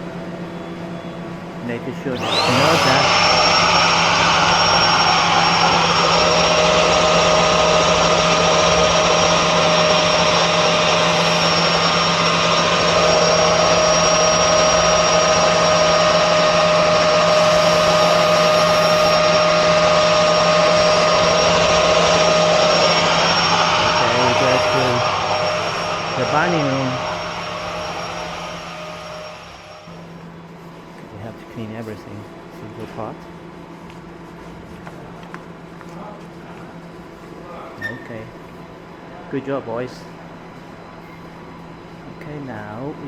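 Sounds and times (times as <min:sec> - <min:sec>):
vacuum cleaner whining: 0:00.5 - 0:30.3.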